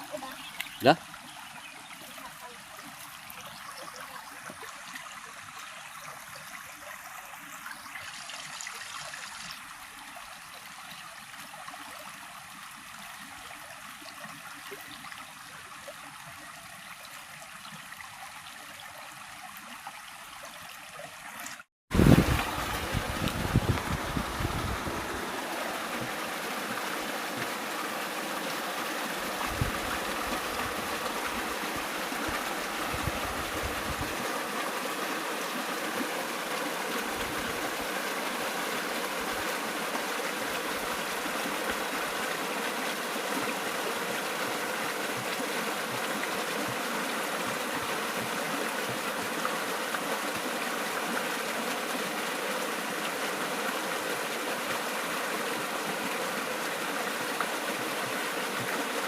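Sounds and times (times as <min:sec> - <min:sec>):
flowing river water: 0:00.0 - 0:59.0
wind buffeting microphone: 0:21.9 - 0:25.2, 0:29.4 - 0:30.0, 0:32.8 - 0:34.2.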